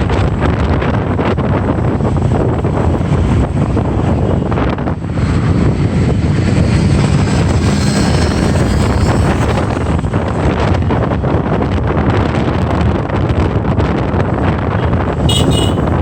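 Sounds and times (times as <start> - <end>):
road noise: 0.0 - 16.0
wind buffeting microphone: 0.0 - 16.0
motorbike engine: 5.0 - 10.5, 15.0 - 16.0.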